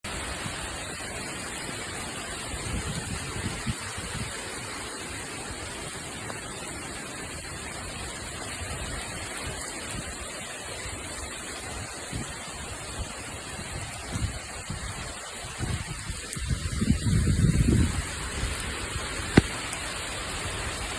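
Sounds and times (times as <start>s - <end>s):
heavy rain pouring: 0.0s - 20.9s
wind buffeting microphone: 2.2s - 5.0s, 11.2s - 20.9s.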